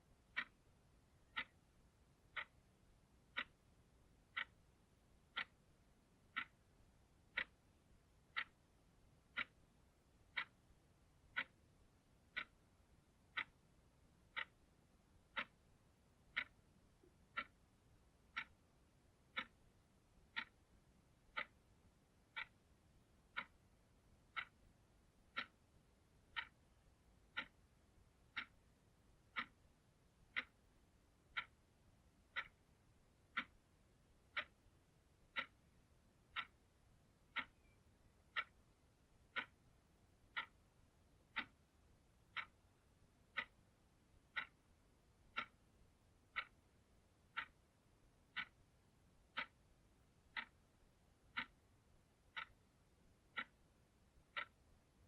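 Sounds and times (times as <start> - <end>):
clock ticking: 0.0 - 55.0.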